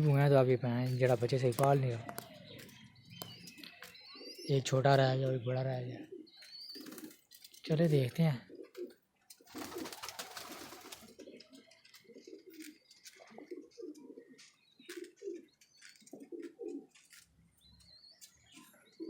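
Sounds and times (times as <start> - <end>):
pigeons cooing: 5.9 - 7.4, 8.4 - 17.2.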